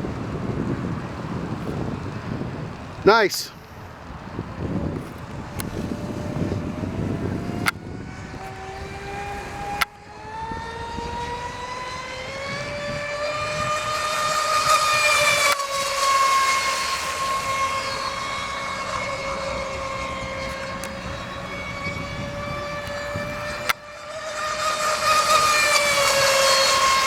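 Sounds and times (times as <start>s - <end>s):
electric motor whine of boat: 0.0s - 27.0s.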